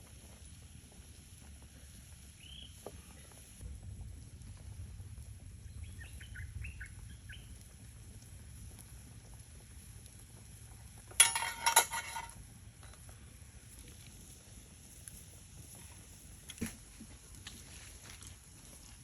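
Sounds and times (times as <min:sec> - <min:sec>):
low steady rumble: 0:03.0 - 0:19.0
bird chirps: 0:05.7 - 0:07.5.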